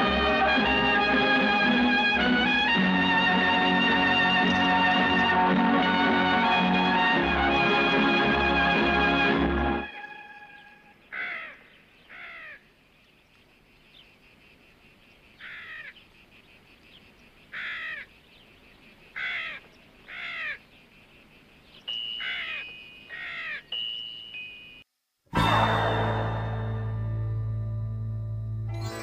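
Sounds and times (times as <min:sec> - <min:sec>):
background music: 0:00.0 - 0:11.0, 0:25.3 - 0:29.0
bird calling: 0:09.9 - 0:24.4.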